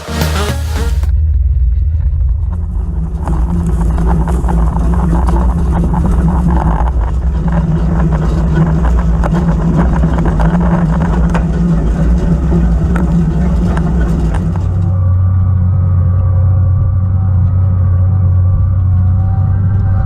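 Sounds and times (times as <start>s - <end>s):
vehicle engine humming: 0.0s - 20.0s
light rattling and clicking: 3.2s - 15.0s.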